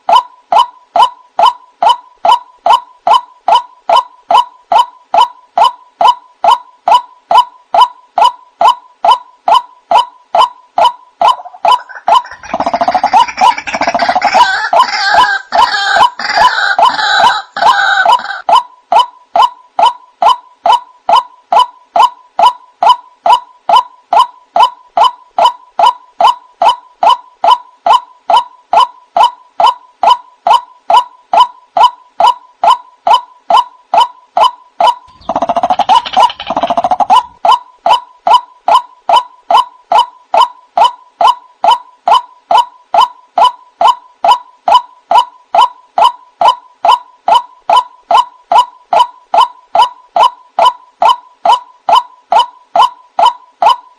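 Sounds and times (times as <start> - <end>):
waterhen calling: 10.8 - 18.5.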